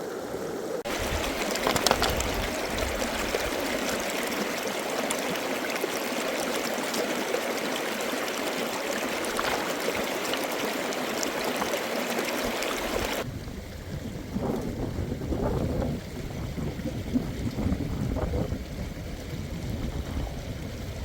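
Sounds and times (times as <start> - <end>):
stream water rushing: 0.0 - 13.9
wind rumble on microphone: 0.2 - 4.2, 12.5 - 21.0.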